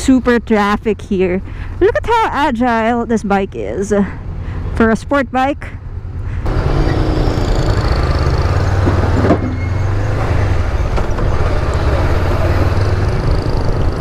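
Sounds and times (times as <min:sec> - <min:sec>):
road noise: 0:00.0 - 0:14.0
motorcycle engine running: 0:11.8 - 0:14.0.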